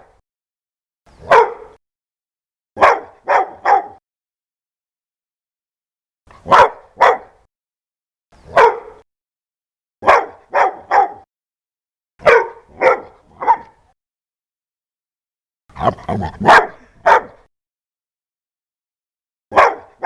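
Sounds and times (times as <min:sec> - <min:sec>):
dog barking: 0:01.2 - 0:01.8, 0:02.8 - 0:04.0, 0:06.4 - 0:07.4, 0:08.5 - 0:09.0, 0:10.0 - 0:11.3, 0:12.2 - 0:13.9, 0:15.8 - 0:17.5, 0:19.5 - 0:20.0.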